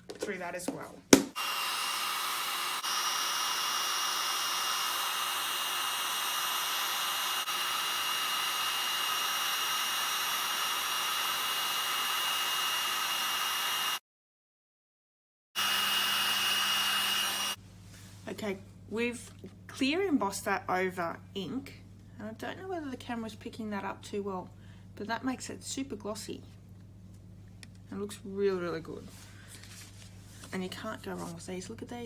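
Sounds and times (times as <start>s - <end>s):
heat tool blowing air: 1.3s - 14.0s, 15.6s - 17.6s.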